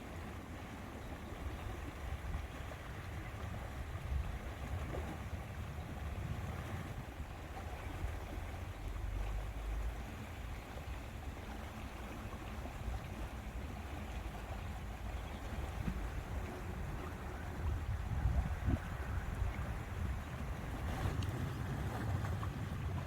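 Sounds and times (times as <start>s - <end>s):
rush of lake water: 0.0s - 23.0s
wind rumbling on microphone: 1.0s - 23.0s.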